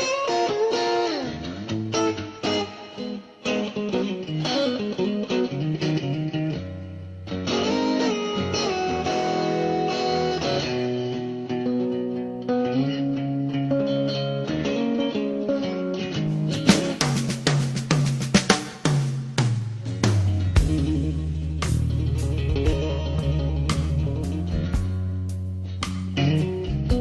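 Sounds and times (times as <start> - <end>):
electric guitar chords: 0.0 - 18.4, 19.5 - 27.0
bass line: 19.6 - 27.0.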